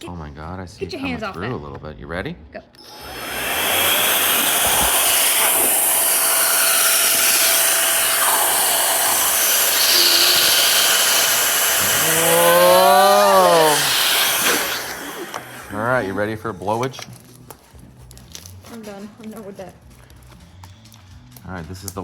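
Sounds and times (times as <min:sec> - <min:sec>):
electric air blower running: 0:02.8 - 0:16.4
person exclaiming: 0:11.8 - 0:14.0.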